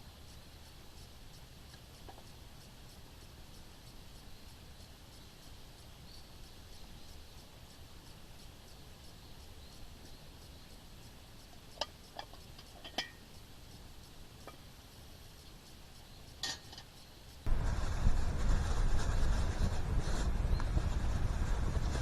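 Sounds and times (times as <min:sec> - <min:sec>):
light clicks and clinks: 0:11.5 - 0:13.4, 0:16.3 - 0:17.1.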